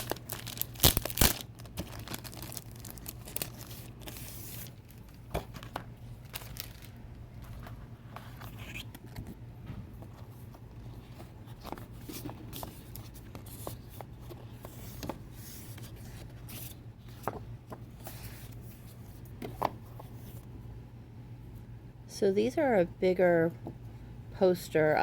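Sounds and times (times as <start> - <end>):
steady low hum: 0.0 - 25.0
paper rubbing and sliding: 3.3 - 4.8.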